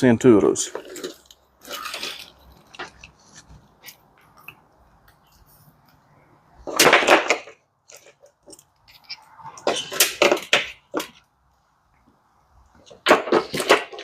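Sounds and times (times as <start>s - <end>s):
wiring harness rustle: 0.7s - 4.4s.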